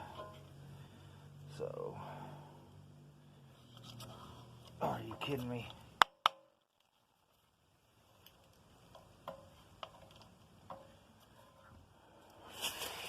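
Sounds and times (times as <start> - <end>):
faint ticks and taps: 8.2 - 11.0.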